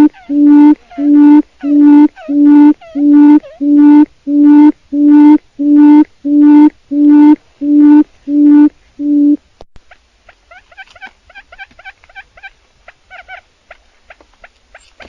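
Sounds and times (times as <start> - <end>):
quail hooting call: 0.0 - 4.0.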